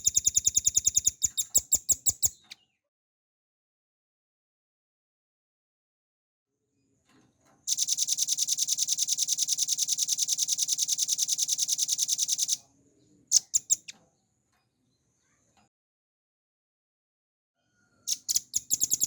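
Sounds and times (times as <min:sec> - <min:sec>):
bird singing high-pitched trill: 0:00.0 - 0:02.6, 0:07.7 - 0:12.6, 0:13.3 - 0:13.9, 0:18.1 - 0:19.0.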